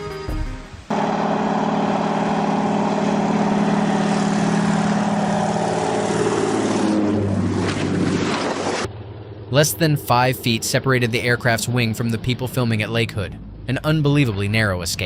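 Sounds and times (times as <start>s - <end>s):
propeller airplane engine droning: 0.8s - 15.0s.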